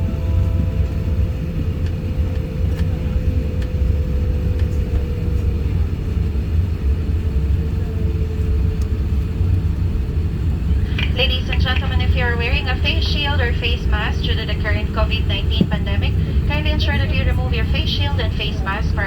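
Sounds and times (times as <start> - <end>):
airliner cabin rumble: 0.0 - 19.0
thin steady whine: 10.5 - 19.0.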